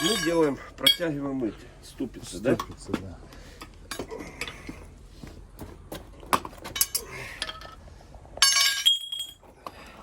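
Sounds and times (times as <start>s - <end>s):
metal tools clinking: 0.0s - 1.2s, 8.4s - 9.4s.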